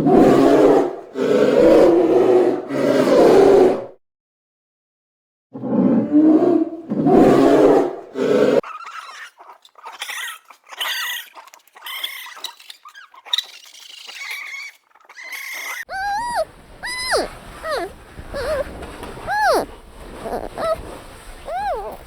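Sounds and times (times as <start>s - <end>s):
farm animal calls: 8.6s - 22.0s.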